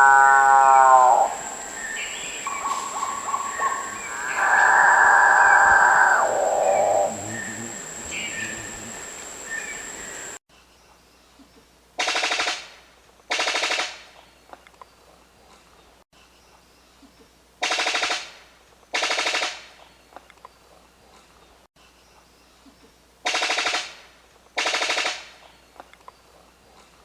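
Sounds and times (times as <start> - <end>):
bird rattling calls: 1.2 - 10.4.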